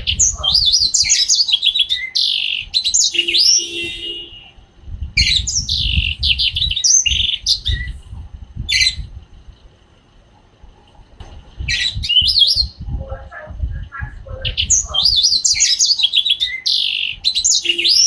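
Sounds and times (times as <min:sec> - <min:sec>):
canary singing: 0:00.0 - 0:04.6, 0:05.2 - 0:08.0, 0:08.7 - 0:09.1, 0:11.6 - 0:18.0.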